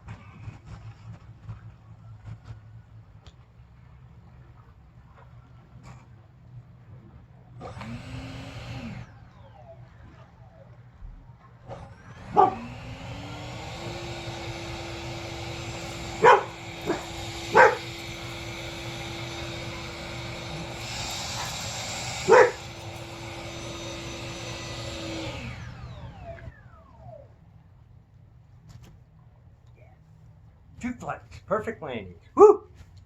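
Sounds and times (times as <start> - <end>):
dog barking: 12.3 - 12.7, 16.2 - 17.9, 22.3 - 22.6, 32.4 - 32.7.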